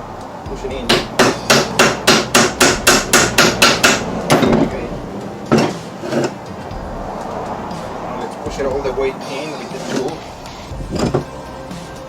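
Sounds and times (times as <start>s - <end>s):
hammer striking metal: 0.8s - 6.4s.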